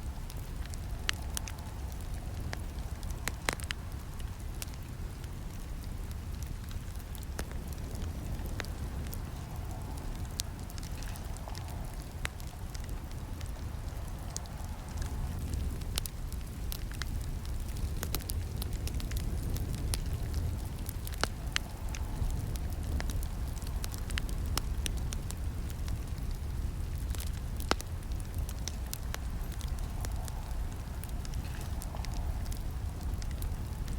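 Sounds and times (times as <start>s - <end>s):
campfire flames rumbling: 0.0s - 33.9s
fire crackling: 0.0s - 33.9s.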